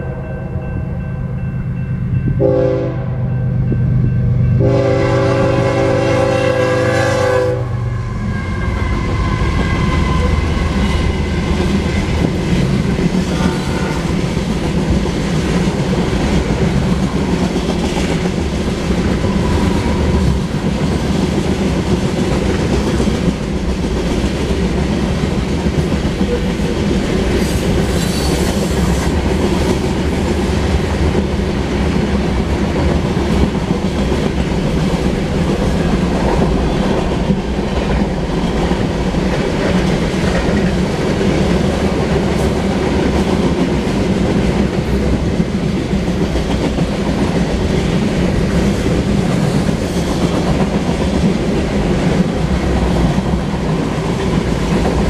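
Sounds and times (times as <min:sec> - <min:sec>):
freight train rumbling past: 0:00.0 - 0:55.0
train horn: 0:02.4 - 0:03.5, 0:04.5 - 0:10.5
steel wheels rattling on rails: 0:08.2 - 0:55.0.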